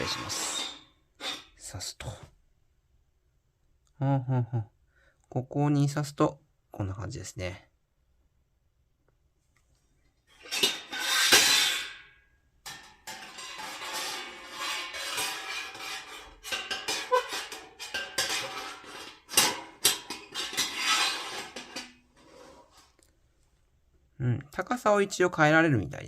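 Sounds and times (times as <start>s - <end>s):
metal rods scraping on metal frame: 0.0s - 1.8s, 10.3s - 12.1s, 12.7s - 23.0s.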